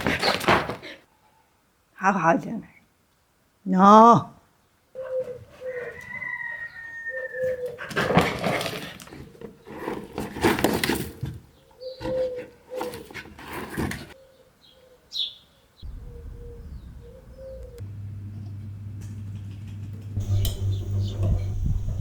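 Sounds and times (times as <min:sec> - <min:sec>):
dove cooing: 0:05.0 - 0:06.4, 0:11.6 - 0:13.1, 0:15.8 - 0:17.8, 0:20.2 - 0:22.0
high bird chirp: 0:14.6 - 0:17.8, 0:20.2 - 0:22.0.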